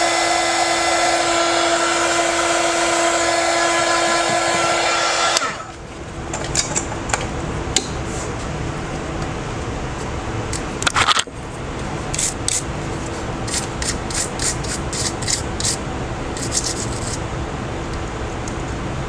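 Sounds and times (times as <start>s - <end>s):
steady hum: 0.0s - 19.0s
hand tool scraping phone parts: 13.5s - 15.8s, 16.4s - 17.2s.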